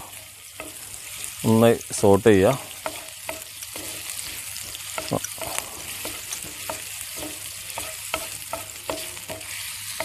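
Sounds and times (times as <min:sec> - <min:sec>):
oil sizzling in a pan: 0:00.0 - 0:10.0
utensil scraping a pan: 0:02.7 - 0:10.0.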